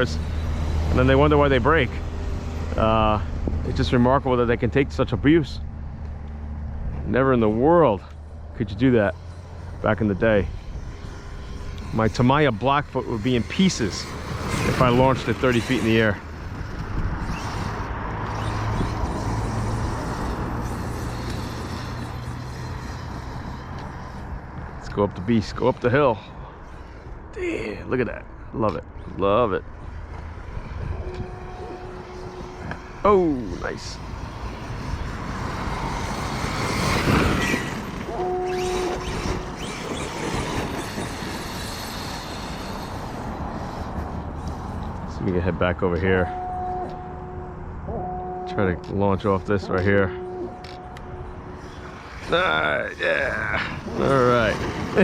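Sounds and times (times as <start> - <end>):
electric rc truck motor: 0.0 - 4.0, 8.0 - 27.3, 29.8 - 45.1, 50.6 - 55.0
wind on microphone: 10.4 - 24.9, 29.8 - 41.3
brief steady tone: 46.2 - 49.0, 50.0 - 51.2.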